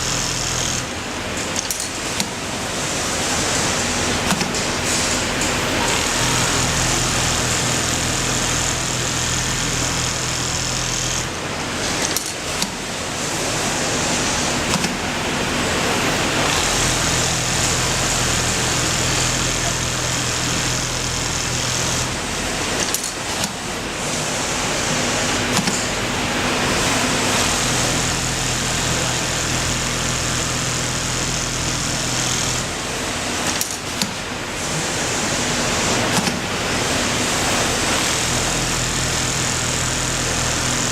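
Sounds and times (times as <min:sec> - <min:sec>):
sewing machine running: 0:00.0 - 0:40.9.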